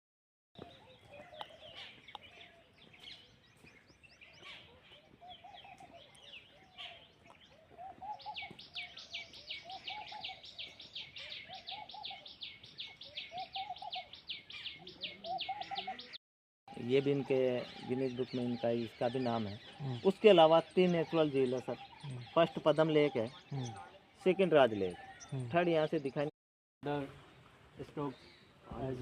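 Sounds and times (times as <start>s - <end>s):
low bird call: 0.6s - 20.1s.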